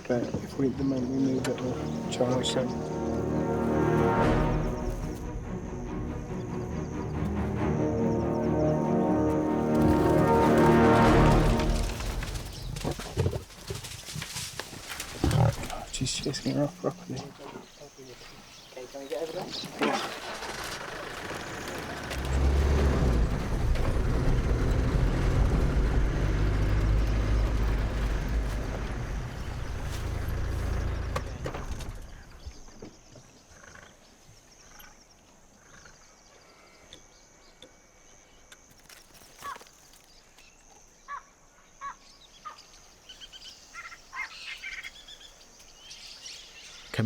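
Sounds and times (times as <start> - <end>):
wild birds chirping: 0.0 - 47.0
vehicle engine driving: 0.1 - 17.2, 20.0 - 32.5
high insect drone: 0.6 - 13.0.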